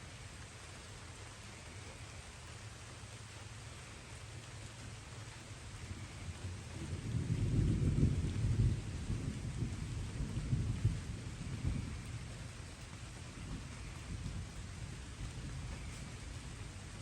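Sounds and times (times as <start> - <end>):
rain hissing: 0.0 - 17.0
distant thunder rumbling: 6.6 - 17.0.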